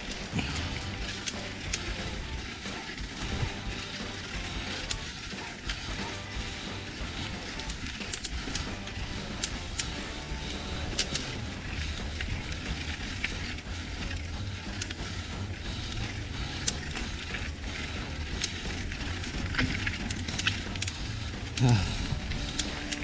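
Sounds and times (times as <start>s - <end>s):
bike clicking and rattling: 0.0s - 23.0s
wind and tyre rumble: 0.0s - 23.0s.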